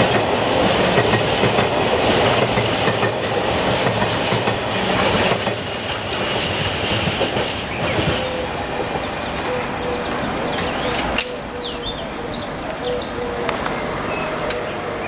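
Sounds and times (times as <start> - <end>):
train wheels clattering over rail joints: 0.0 - 9.0.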